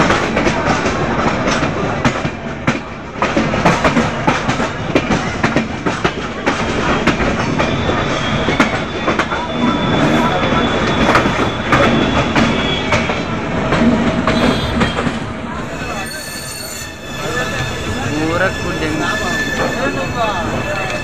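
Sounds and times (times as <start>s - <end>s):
train wheels clattering over rail joints: 0.0s - 16.2s
steady train rumble: 0.0s - 21.0s
high wheel squeal: 6.9s - 13.3s, 15.6s - 21.0s.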